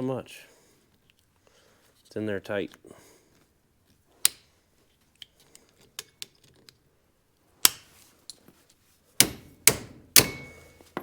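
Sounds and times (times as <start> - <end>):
sharp metal clack with ring: 10.2 - 10.8.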